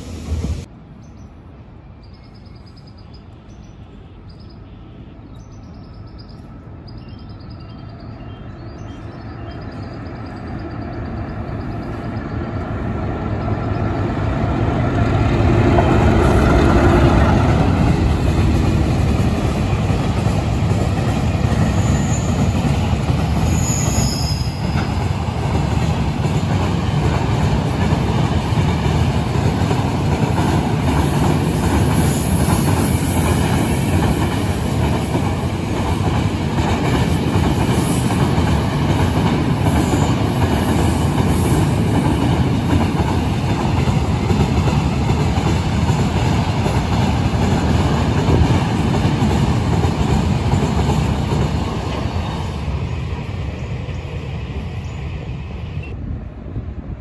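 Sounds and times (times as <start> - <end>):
train wheels rolling over track: 8.8 - 56.0.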